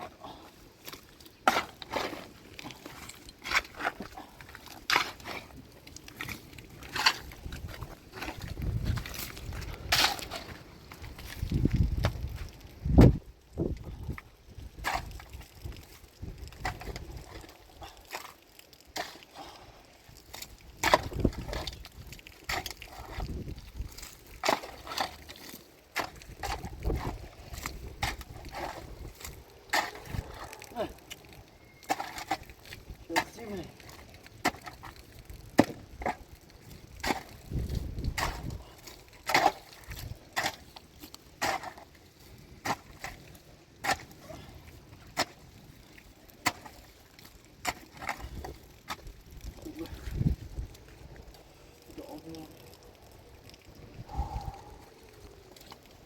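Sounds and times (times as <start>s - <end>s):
low rumbling: 53.8s - 55.2s.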